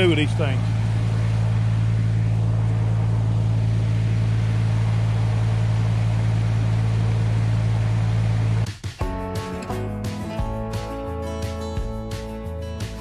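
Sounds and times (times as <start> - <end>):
diesel engine droning: 0.0 - 8.7.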